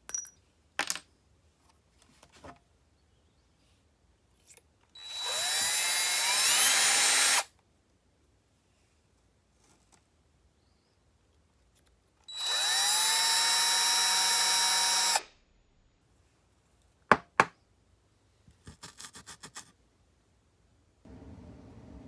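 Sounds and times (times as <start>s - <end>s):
power tool whine: 5.0s - 7.5s, 12.3s - 15.2s
low steady hum: 20.9s - 22.0s.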